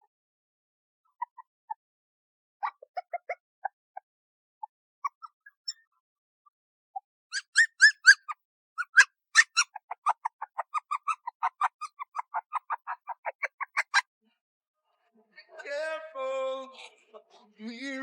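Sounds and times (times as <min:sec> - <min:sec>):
high-pitched animal calls: 0:07.3 - 0:14.0.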